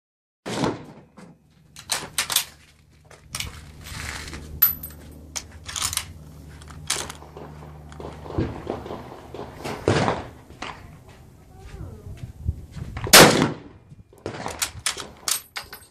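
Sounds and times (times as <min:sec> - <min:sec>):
low steady hum: 0:01.3 - 0:12.8.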